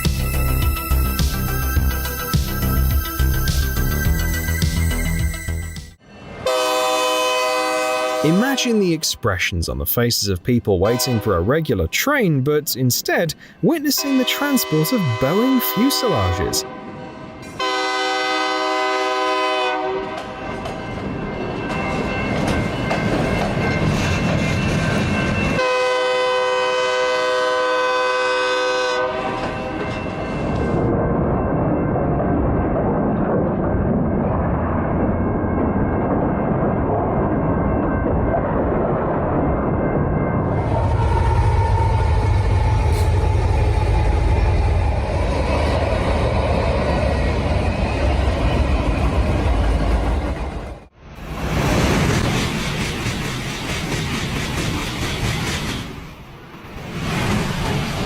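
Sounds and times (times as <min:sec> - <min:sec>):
train air horn: 0:06.4 - 0:08.7, 0:10.8 - 0:11.3, 0:14.0 - 0:20.4, 0:25.6 - 0:29.7
train wheels clacking over rail joints: 0:51.9 - 0:56.2.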